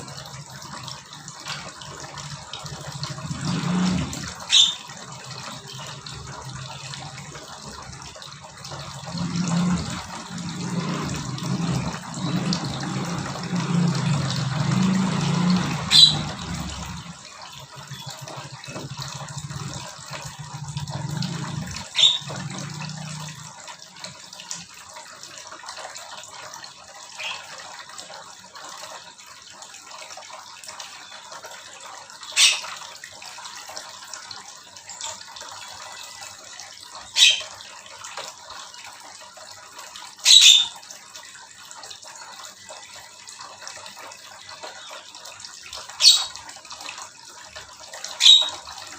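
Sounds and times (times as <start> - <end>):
running water: 0.0 - 48.9
low hum: 8.6 - 17.2.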